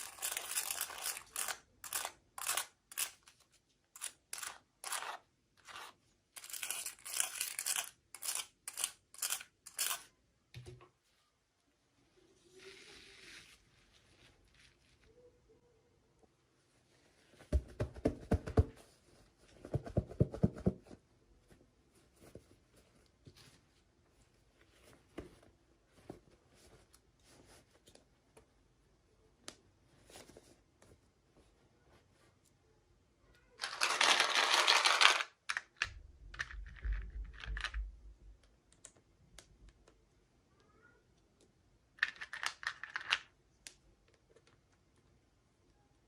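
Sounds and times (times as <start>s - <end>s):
small clicks and taps: 35.5s - 40.0s.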